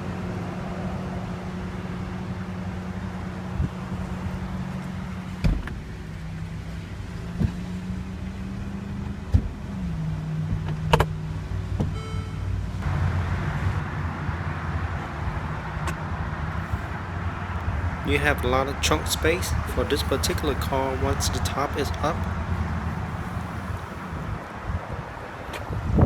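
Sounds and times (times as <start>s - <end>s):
car roof mechanism humming: 18.8s - 24.4s.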